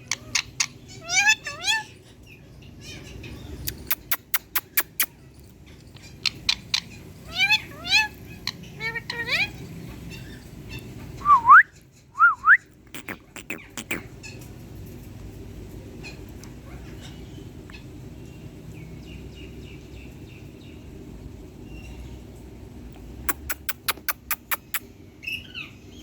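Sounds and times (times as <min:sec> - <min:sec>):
soft bird chirping: 0:00.0 - 0:14.5, 0:23.1 - 0:26.0
sharp clicks: 0:03.7 - 0:05.1, 0:23.3 - 0:24.8.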